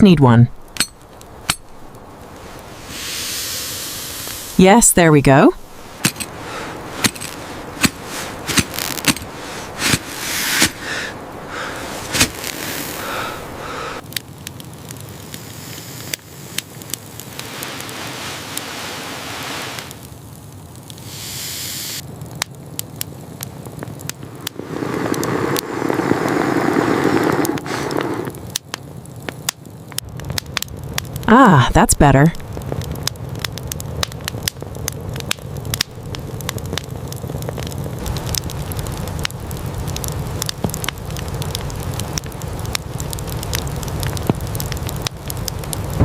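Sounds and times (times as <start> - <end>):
wood fire crackling: 0.0 - 46.0
rustling noise: 5.6 - 13.1, 24.4 - 28.3.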